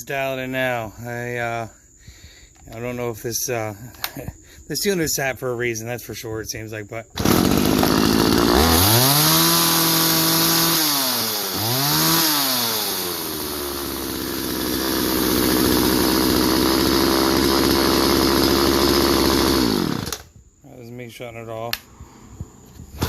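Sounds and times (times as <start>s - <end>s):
chainsaw engine revving: 7.2s - 20.3s.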